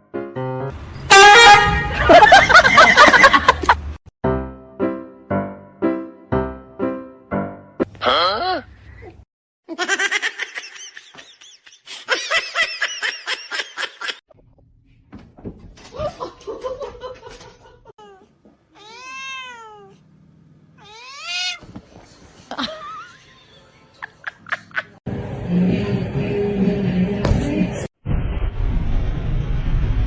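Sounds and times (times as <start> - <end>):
person laughing: 1.9 - 3.9, 8.1 - 14.2, 22.4 - 23.4, 24.0 - 25.0
cat meowing: 18.7 - 20.0, 20.8 - 21.7.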